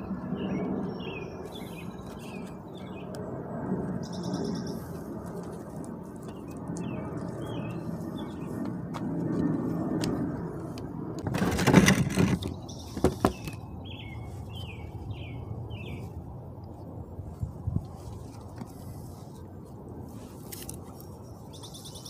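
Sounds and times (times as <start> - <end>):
small birds chirping: 0.0 - 3.2, 4.0 - 5.0, 6.2 - 8.7, 12.4 - 16.2, 20.9 - 22.0
low outdoor background: 0.0 - 22.0
loud rustling scrape: 11.2 - 13.6.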